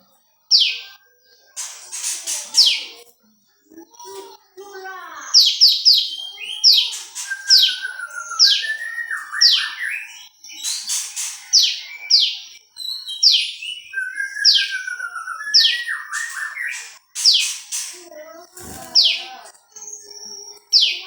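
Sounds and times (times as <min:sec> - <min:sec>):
bird singing sharp downward notes: 0:04.8 - 0:21.0.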